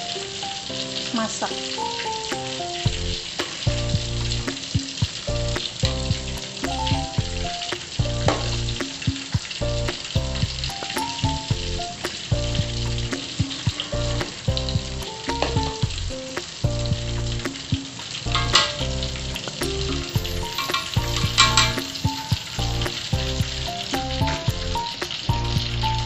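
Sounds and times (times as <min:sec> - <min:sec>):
oil sizzling: 0:00.0 - 0:26.0
background music with bass beat: 0:02.9 - 0:26.0
utensil scraping a wok: 0:20.2 - 0:22.4.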